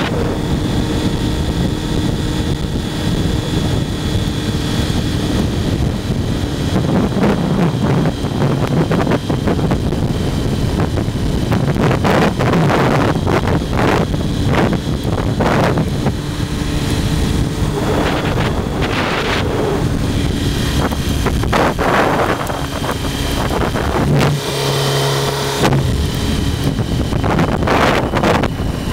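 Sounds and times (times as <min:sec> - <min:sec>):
motorcycle engine running: 0:00.0 - 0:28.9
wind buffeting microphone: 0:00.0 - 0:28.9.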